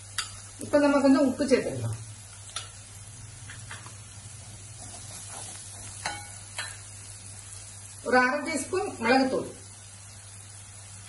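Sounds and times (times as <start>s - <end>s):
onion and garlic sizzling in oil: 0.0s - 11.0s
wooden spatula scraping a pan: 4.4s - 6.3s.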